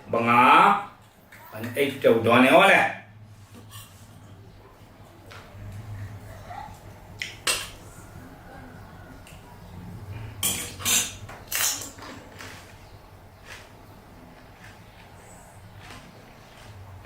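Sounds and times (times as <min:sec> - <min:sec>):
crisp eating crunches: 0:13.4 - 0:17.0.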